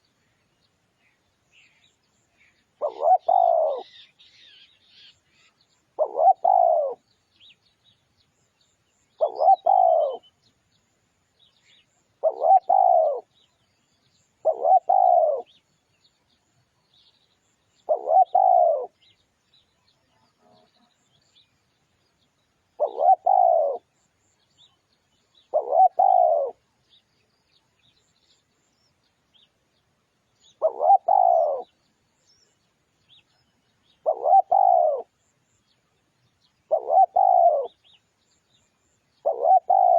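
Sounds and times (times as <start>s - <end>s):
small birds chirping: 0.0s - 39.9s
dove cooing: 2.4s - 4.2s, 6.0s - 7.1s, 9.2s - 10.3s, 12.2s - 13.4s, 14.4s - 15.6s, 17.9s - 19.0s, 22.8s - 23.9s, 25.5s - 26.6s, 30.5s - 31.8s, 34.0s - 35.1s, 36.7s - 37.9s, 39.2s - 39.9s.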